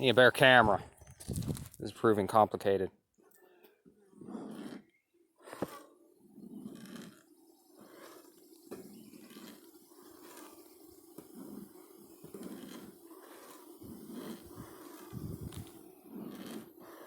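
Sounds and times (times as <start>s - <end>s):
bees humming: 6.2s - 17.0s.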